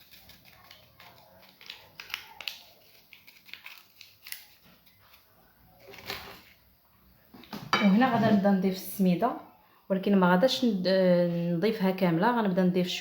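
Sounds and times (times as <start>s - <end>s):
light rustling of sachets: 0.0s - 6.6s.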